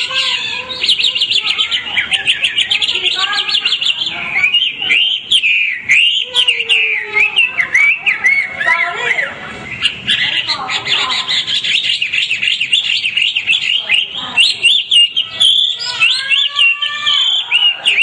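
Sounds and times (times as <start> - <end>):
bird singing whistled phrases: 0.0 - 18.0.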